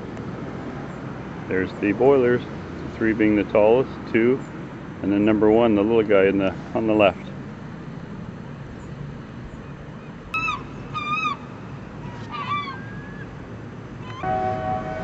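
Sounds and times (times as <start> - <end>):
horn-like warning whistle: 14.1 - 15.0.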